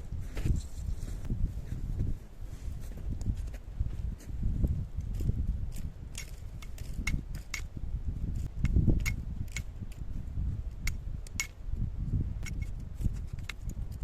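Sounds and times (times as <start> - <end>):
steady low rumble: 0.0 - 14.0
sharp clicks and knocks: 10.7 - 11.6.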